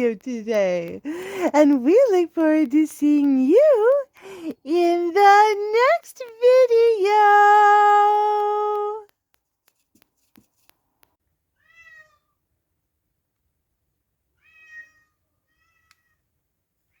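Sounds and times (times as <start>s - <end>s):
cat meowing: 11.6s - 12.3s, 14.4s - 16.2s.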